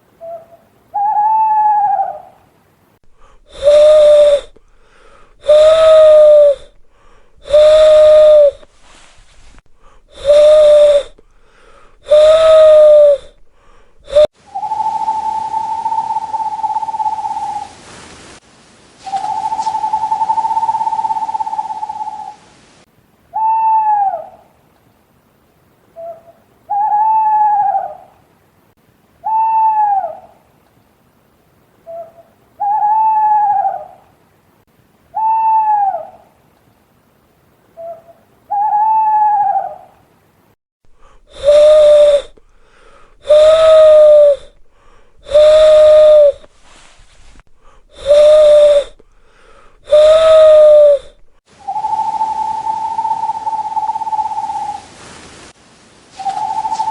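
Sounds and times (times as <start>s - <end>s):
owl hooting: 0.0s - 2.5s, 3.1s - 17.8s, 19.0s - 22.5s, 23.3s - 24.6s, 25.9s - 28.2s, 29.2s - 30.5s, 31.8s - 34.1s, 35.1s - 36.4s, 37.8s - 40.0s, 41.0s - 55.0s, 56.1s - 56.9s
breathy whistling call: 0.2s - 2.4s, 3.1s - 17.7s, 19.0s - 22.4s, 23.3s - 24.4s, 26.0s - 28.1s, 29.2s - 30.3s, 31.9s - 34.0s, 35.1s - 36.2s, 37.8s - 39.9s, 41.0s - 54.9s, 56.2s - 56.9s
long whistled owl note: 3.5s - 4.6s, 5.4s - 6.8s, 7.4s - 9.4s, 10.1s - 11.3s, 12.0s - 13.4s, 14.0s - 17.6s, 41.3s - 42.4s, 43.2s - 44.5s, 45.2s - 46.8s, 47.9s - 49.0s, 49.8s - 54.8s, 56.2s - 56.9s.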